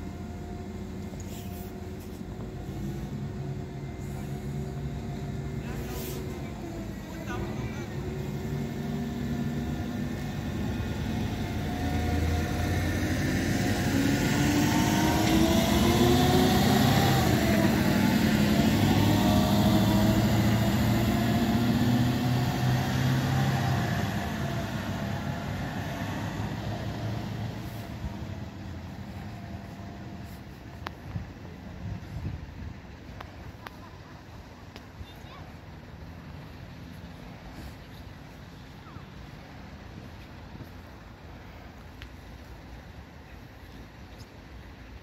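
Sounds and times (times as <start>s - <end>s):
train accelerating away: 0.0s - 34.6s.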